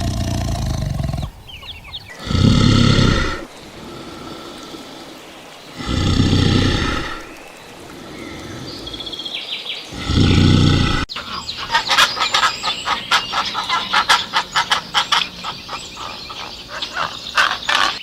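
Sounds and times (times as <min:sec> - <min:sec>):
low animal call: 0:00.0 - 0:09.3, 0:09.9 - 0:12.5
birds chirping: 0:00.0 - 0:18.0.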